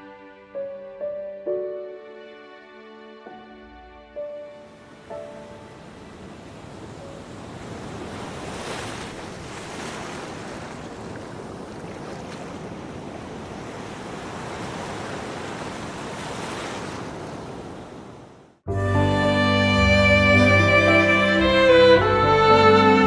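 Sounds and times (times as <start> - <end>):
wind: 0.0 - 23.0
sea waves breaking: 4.6 - 18.6.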